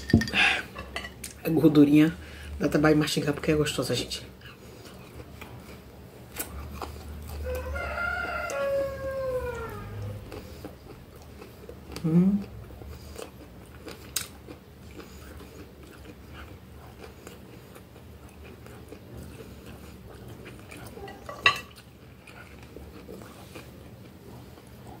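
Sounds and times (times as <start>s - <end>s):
person chewing: 4.4s - 25.0s.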